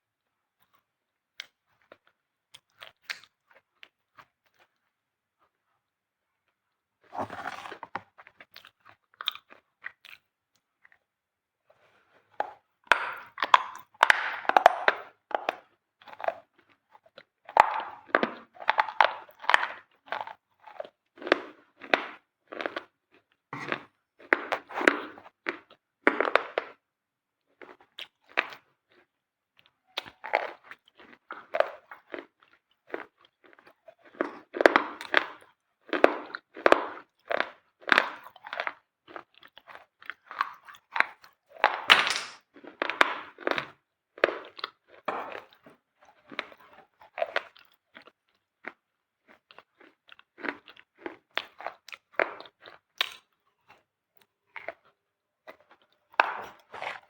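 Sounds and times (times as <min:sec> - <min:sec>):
gritty crunching of dry material: 0:07.1 - 0:08.0.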